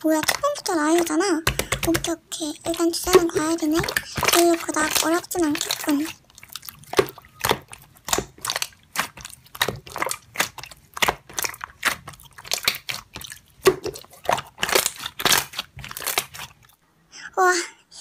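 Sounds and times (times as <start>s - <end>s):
slime popping and clicking: 0.2s - 16.5s.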